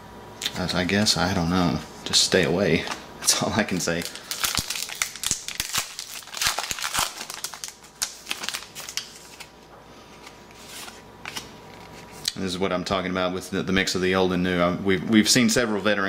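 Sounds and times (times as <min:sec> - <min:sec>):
cards flicking and rustling: 0:03.7 - 0:12.2.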